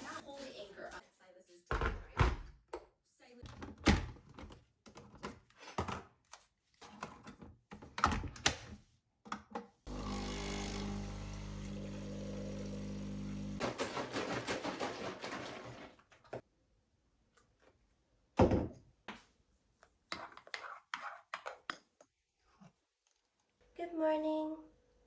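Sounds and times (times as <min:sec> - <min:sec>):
small machine humming: 0:09.9 - 0:13.6.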